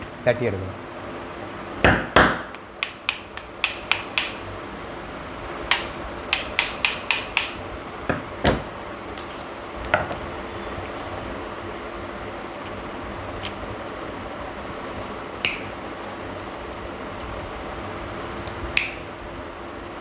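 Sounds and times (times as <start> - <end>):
sharp tapping on metal part: 1.9 - 4.4, 5.7 - 8.6.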